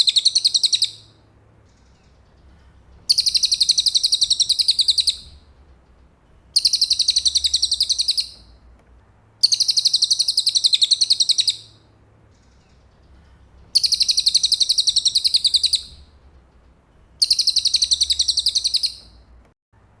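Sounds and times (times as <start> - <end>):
bird trilling: 0.0 - 1.2, 3.1 - 5.4, 6.5 - 8.5, 9.4 - 11.8, 13.7 - 16.1, 17.2 - 19.2.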